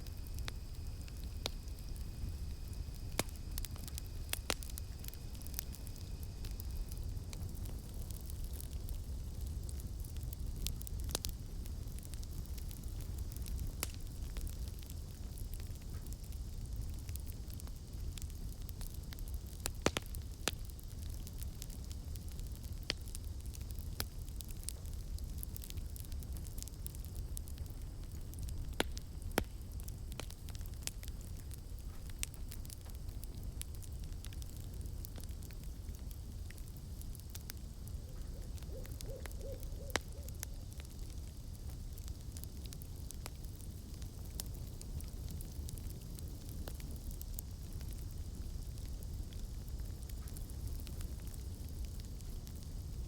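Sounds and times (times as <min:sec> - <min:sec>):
campfire crackling and popping: 0:00.0 - 0:53.0
owl hooting: 0:38.1 - 0:40.4.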